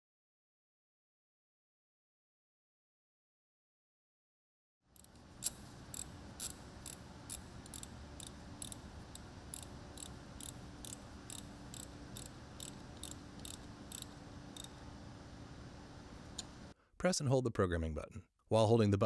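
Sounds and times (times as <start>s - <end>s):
steady sharp ticking: 5.0s - 14.8s
room noise: 5.0s - 16.8s.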